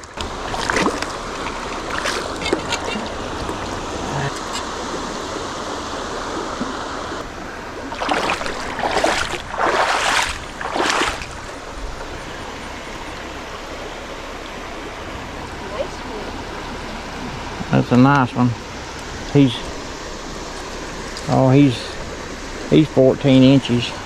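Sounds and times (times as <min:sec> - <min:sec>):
creek water running: 0:00.0 - 0:24.0
fish thrashing and splashing: 0:00.1 - 0:04.0, 0:07.8 - 0:12.4.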